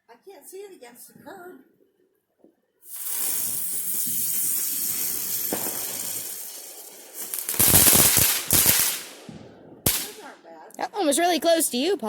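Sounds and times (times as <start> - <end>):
crackling firework bangs: 2.9 - 10.3
firework hissing: 2.9 - 10.3.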